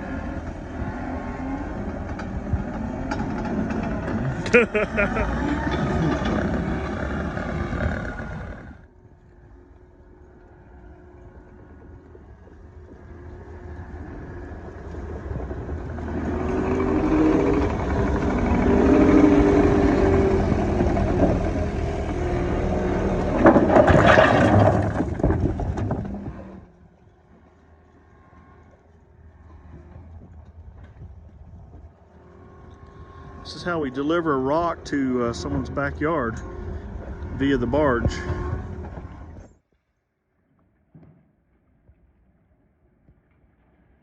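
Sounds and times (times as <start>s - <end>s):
vehicle engine running: 0.0s - 8.9s, 12.9s - 23.9s
rattling clatter: 16.2s - 26.6s.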